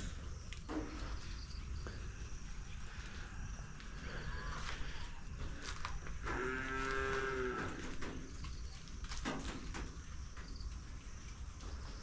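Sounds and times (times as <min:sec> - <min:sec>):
cow mooing: 0:06.2 - 0:08.0.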